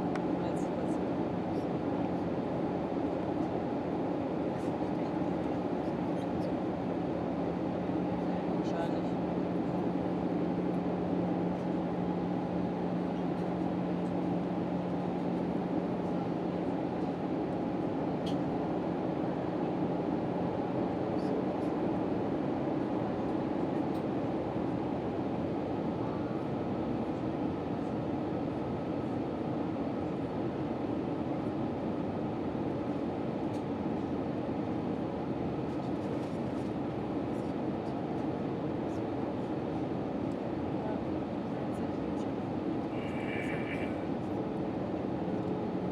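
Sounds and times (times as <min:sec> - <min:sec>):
airliner cabin roar: 0:42.7 - 0:45.2.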